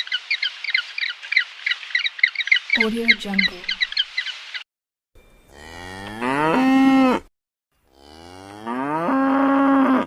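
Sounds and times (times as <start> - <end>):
cow mooing: 5.5 - 10.0.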